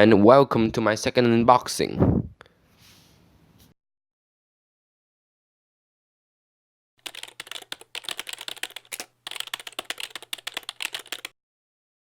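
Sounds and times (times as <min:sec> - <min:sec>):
fast sharp clicks and clacks: 0:07.0 - 0:11.3.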